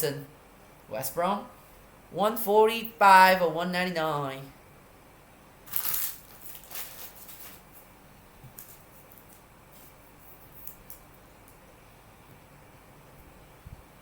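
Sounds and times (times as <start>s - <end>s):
foil packs rustling: 5.7s - 7.8s.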